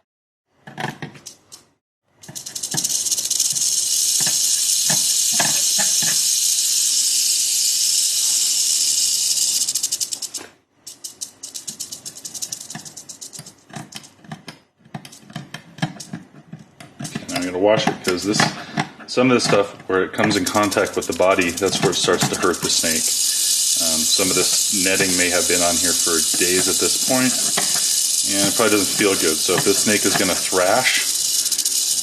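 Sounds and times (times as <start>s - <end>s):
rattlesnake rattling: 2.2s - 14.2s, 17.2s - 18.6s, 20.2s - 32.0s.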